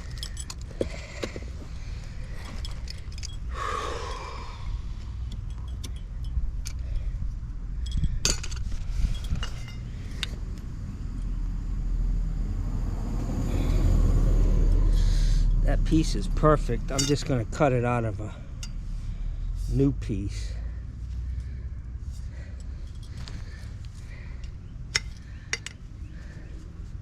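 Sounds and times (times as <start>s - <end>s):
metal tools clinking: 0.0s - 4.6s, 5.2s - 7.2s, 7.8s - 10.4s, 16.0s - 17.4s, 18.4s - 18.9s, 19.6s - 20.6s, 22.1s - 26.6s
steady low rumble: 0.0s - 27.0s.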